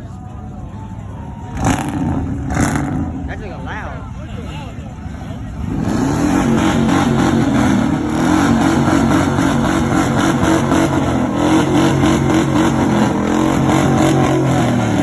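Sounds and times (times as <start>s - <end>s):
car engine revving high: 1.5s - 3.7s, 5.4s - 15.0s.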